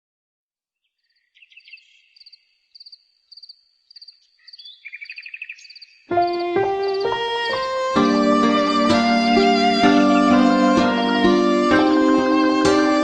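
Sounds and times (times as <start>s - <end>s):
insects chirping in trills: 1.1s - 7.8s
lower insect trill: 2.1s - 7.7s
bowed string music: 6.1s - 13.0s.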